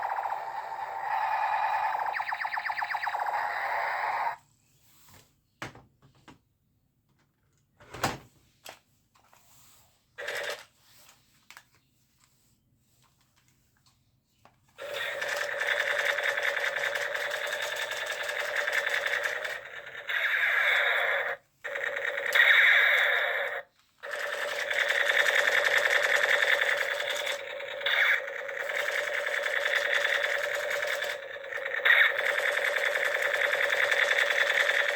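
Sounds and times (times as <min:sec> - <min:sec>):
toy gun rapid rattle: 0:00.0 - 0:04.4, 0:10.2 - 0:10.7, 0:14.8 - 0:34.9.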